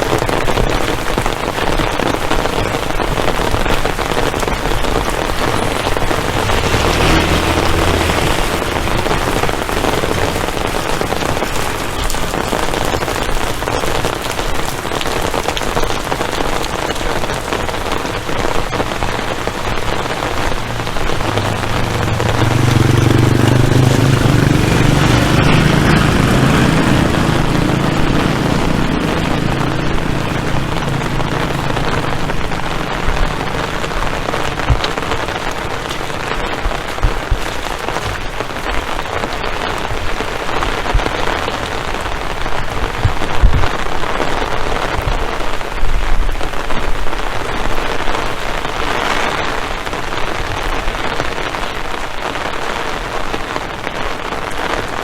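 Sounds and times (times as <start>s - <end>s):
rain drumming on surfaces: 0.0s - 55.0s
low rumble: 18.9s - 36.4s.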